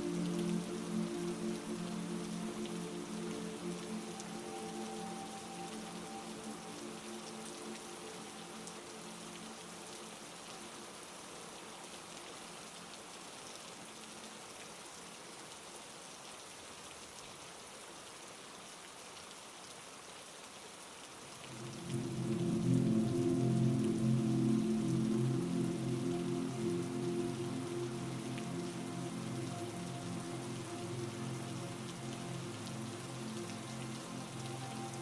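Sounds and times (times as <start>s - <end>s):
soft low sustained chord: 0.0s - 11.4s, 21.4s - 35.0s
heavy rain falling: 0.0s - 35.0s.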